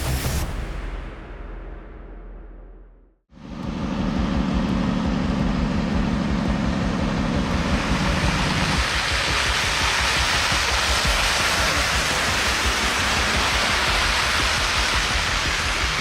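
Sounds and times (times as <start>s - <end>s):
heavy truck engine pulsing: 3.3s - 16.0s
steady rushing noise: 3.3s - 16.0s.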